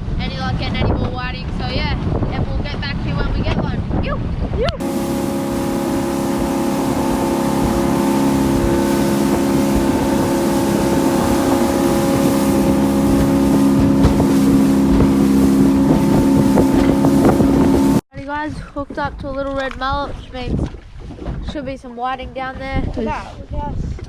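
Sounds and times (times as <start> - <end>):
wind on microphone: 0.0 - 18.0, 19.0 - 24.0
boat motor running: 4.8 - 18.0.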